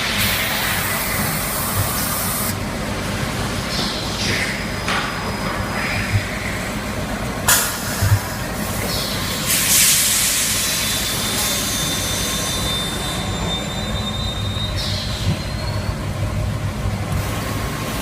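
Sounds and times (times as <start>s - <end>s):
loud hiss: 9.4s - 13.2s.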